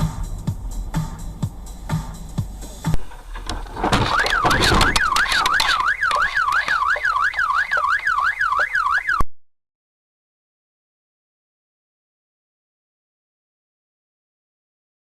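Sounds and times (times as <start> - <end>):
loud knocks and clatter: 3.0 - 7.2
car alarm wailing: 3.9 - 9.2.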